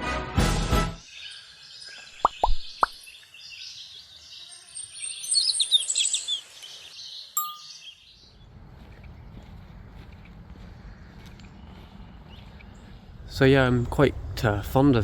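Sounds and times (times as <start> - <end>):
birds singing and calling: 1.0 - 13.2
short bright ding: 7.4 - 7.8
low steady rumble: 8.4 - 15.0.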